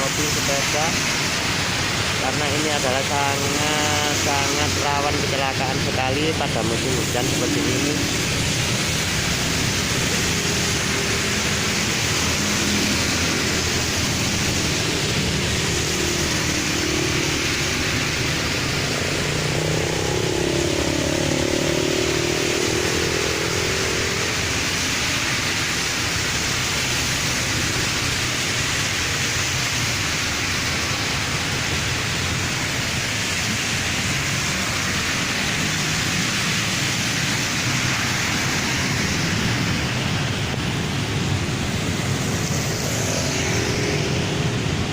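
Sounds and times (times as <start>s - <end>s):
heavy rain hiss: 0.0s - 44.9s
tyres on wet road: 0.0s - 44.9s
vehicle engine passing by: 3.6s - 24.8s.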